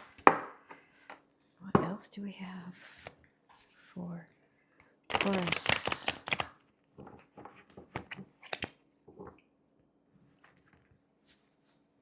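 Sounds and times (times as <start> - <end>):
cards being shuffled: 5.1 - 6.5, 7.4 - 8.8.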